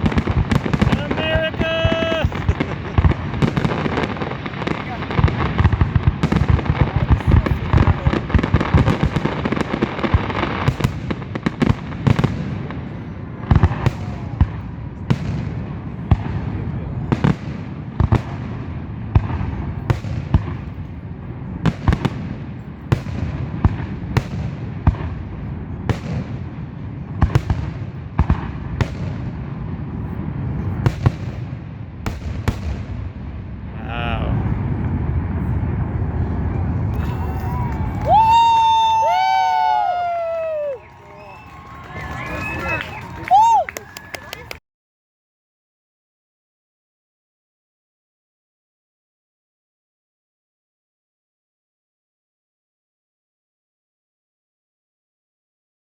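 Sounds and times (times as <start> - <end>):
fireworks booming and crackling: 0.0 - 44.0
fireworks bangs: 0.0 - 44.6
low rumble: 33.6 - 38.2.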